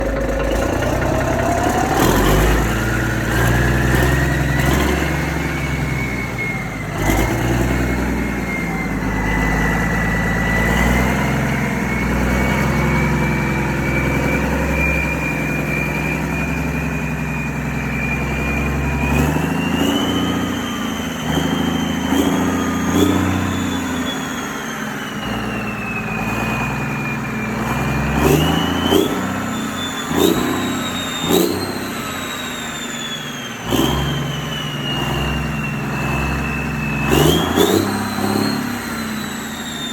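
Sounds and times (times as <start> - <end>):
high rising whine: 0.0 - 22.8
engine running: 0.0 - 39.9.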